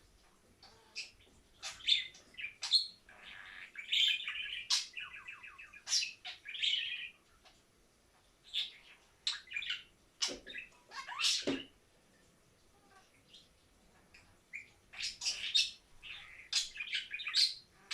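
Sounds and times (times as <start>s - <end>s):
budgerigar chirping and warbling: 0.6s - 7.1s, 8.6s - 11.7s, 14.5s - 17.9s.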